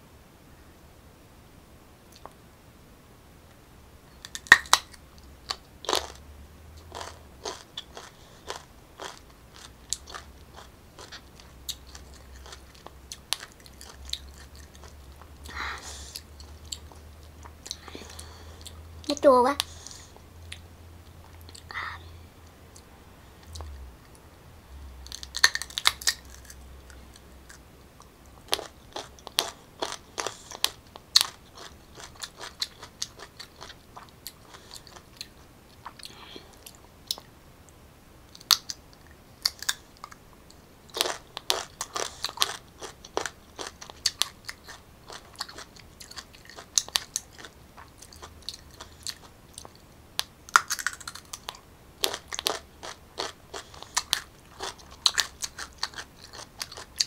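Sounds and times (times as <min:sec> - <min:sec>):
crunchy mango chewing: 0:06.8 - 0:18.8, 0:25.0 - 0:37.3, 0:40.9 - 0:57.0.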